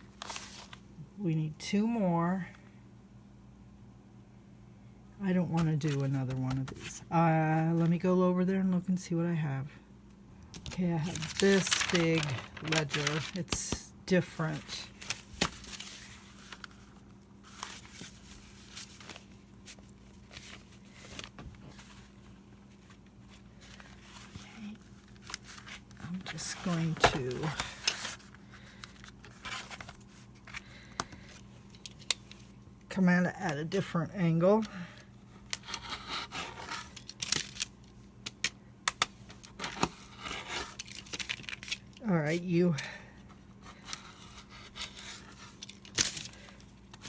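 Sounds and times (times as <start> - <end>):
faint steady hum: 0.0 - 47.0
paper rustling: 0.1 - 0.8, 10.6 - 32.5.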